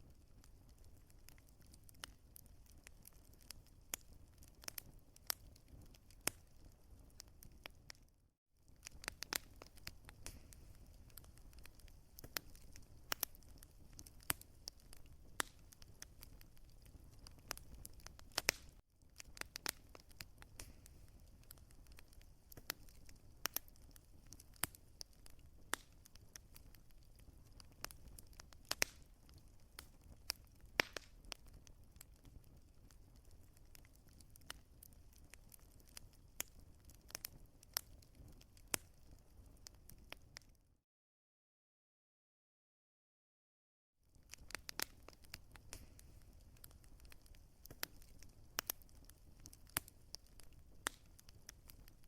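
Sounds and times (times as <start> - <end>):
low rumble of flames: 0.0 - 40.5, 44.1 - 52.0
fire crackling and popping: 0.0 - 40.6, 44.1 - 52.0.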